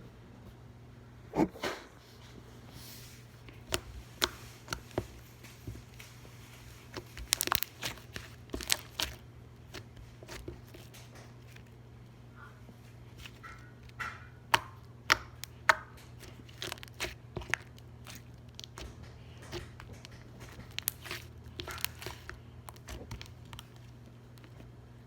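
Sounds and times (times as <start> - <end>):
slime clicking and popping: 7.2 - 10.5, 13.4 - 23.8.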